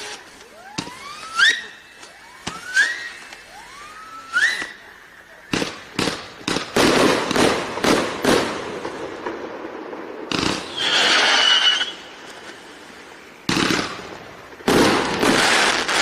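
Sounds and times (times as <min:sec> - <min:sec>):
firework hissing whistle: 0:00.0 - 0:06.1, 0:10.3 - 0:14.2
firework bangs: 0:00.0 - 0:16.0
firework crackling: 0:00.0 - 0:16.0.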